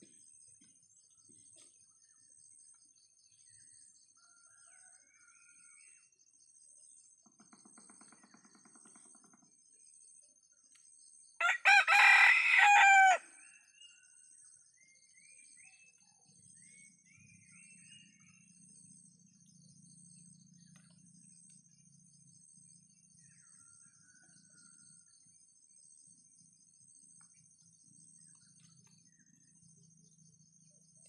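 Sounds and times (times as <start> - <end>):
rooster crowing: 11.4 - 13.6.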